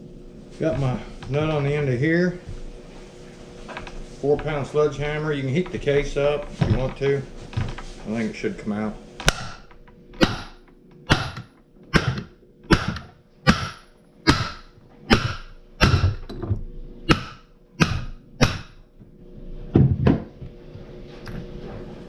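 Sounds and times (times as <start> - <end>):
sledgehammer striking metal: 9.3 - 16.2, 17.1 - 18.8.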